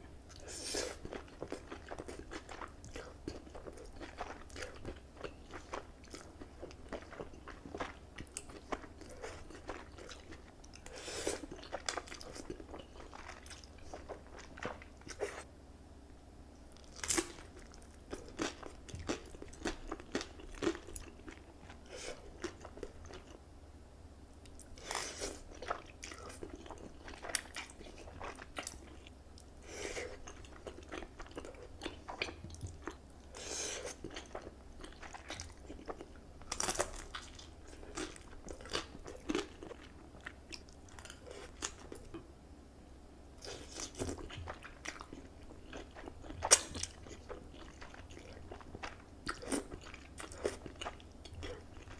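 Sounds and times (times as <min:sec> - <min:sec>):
wet chewing and crunching: 0:00.3 - 0:15.5, 0:16.7 - 0:23.4, 0:24.5 - 0:42.2, 0:43.4 - 0:51.9.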